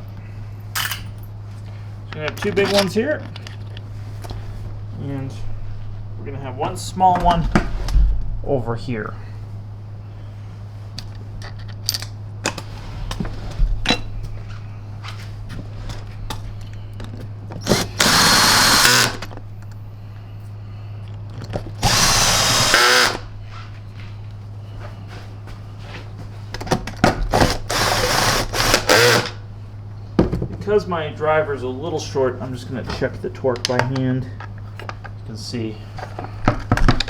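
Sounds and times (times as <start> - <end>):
steady low hum: 0.0 - 37.0
power screwdriver driving screws: 17.6 - 19.3, 21.8 - 23.3, 27.4 - 29.4.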